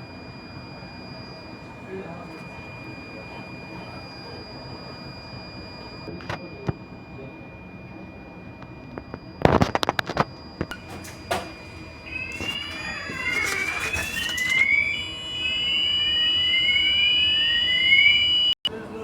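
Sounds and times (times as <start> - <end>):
electronic alarm tones: 0.0 - 18.6
sharp clicks and knocks: 10.7 - 14.7.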